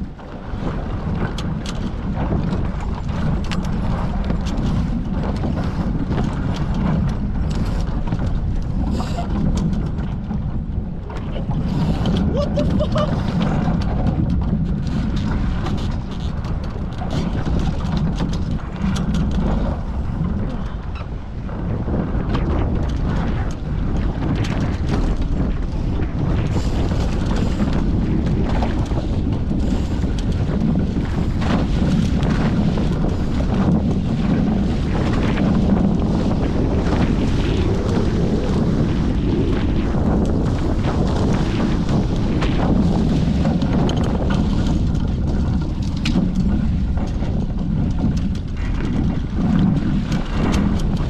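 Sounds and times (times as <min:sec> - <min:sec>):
water splashing against hull: 0:00.0 - 0:51.0
wind buffeting microphone: 0:00.0 - 0:51.0
water rushing: 0:10.9 - 0:13.8.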